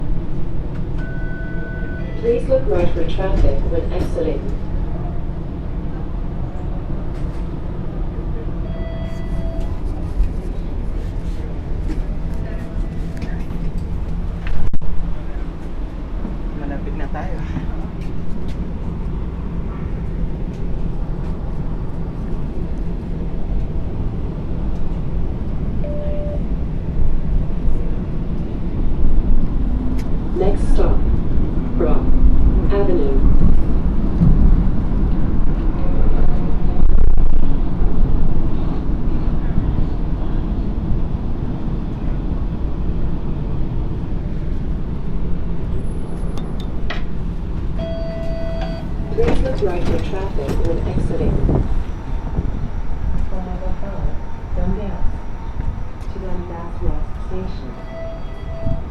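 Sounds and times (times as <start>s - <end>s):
streetcar rumbling on tracks: 0.0s - 58.9s
short beep: 8.6s - 9.8s, 25.8s - 26.4s, 47.8s - 48.9s, 57.8s - 58.9s.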